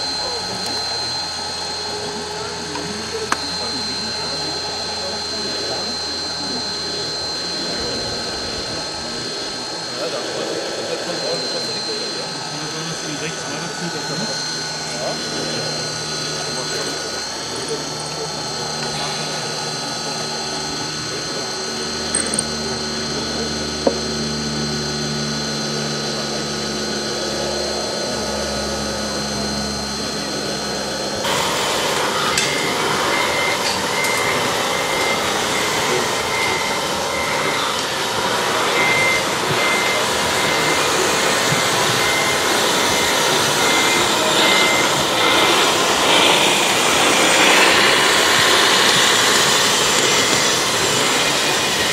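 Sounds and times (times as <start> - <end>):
model excavator motors whining: 0.0 - 51.9
high beep: 32.1 - 38.0, 38.7 - 49.2.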